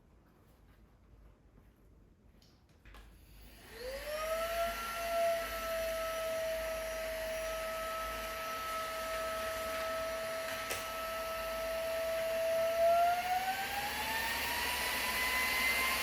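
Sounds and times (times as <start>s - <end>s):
vacuum cleaner motor whine: 3.2s - 16.0s.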